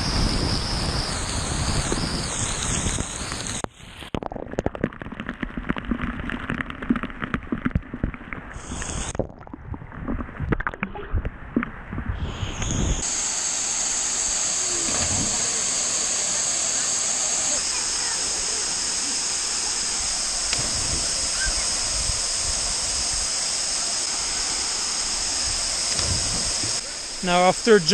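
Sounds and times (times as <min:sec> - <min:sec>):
steady rushing hiss: 0:00.0 - 0:03.7, 0:08.6 - 0:09.2, 0:12.2 - 0:27.9
muffled water sloshing and gurgling: 0:00.0 - 0:13.2.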